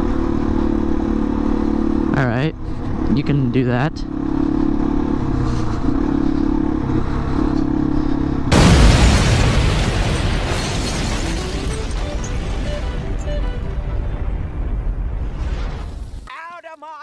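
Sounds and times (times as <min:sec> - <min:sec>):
motorcycle engine running: 0:00.0 - 0:08.5
loud blast of noise: 0:08.5 - 0:16.2.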